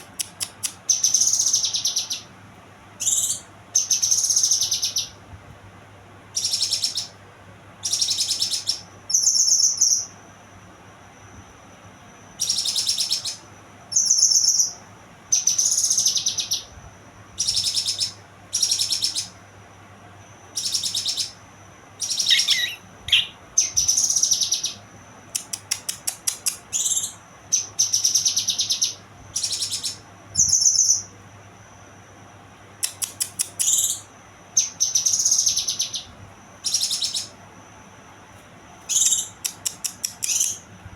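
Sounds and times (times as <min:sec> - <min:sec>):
songbird singing high phrases: 0:00.4 - 0:02.3, 0:07.8 - 0:10.2, 0:12.4 - 0:16.7, 0:17.4 - 0:19.4, 0:20.5 - 0:24.8, 0:26.7 - 0:31.1.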